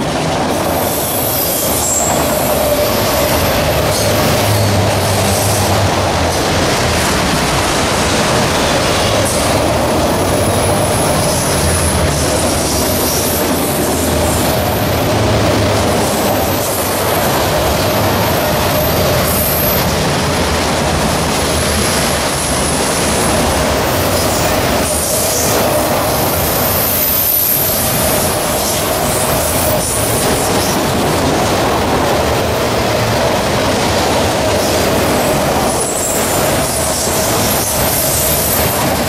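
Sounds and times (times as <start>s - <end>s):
train wheels rumbling on rails: 0.0s - 39.0s
high-pitched wheel squeal: 0.7s - 5.7s, 23.9s - 30.3s.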